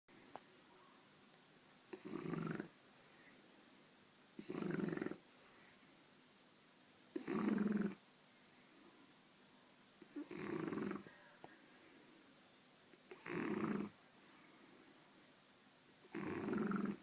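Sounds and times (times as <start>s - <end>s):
puppy snoring: 1.9s - 2.8s, 4.4s - 5.2s, 7.1s - 8.0s, 10.0s - 11.1s, 13.0s - 14.0s, 16.0s - 17.0s.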